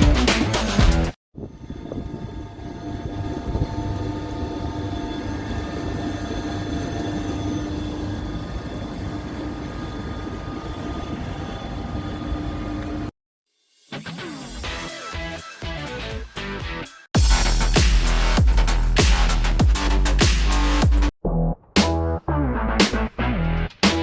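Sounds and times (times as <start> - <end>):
machinery humming and whining: 1.5 - 13.1.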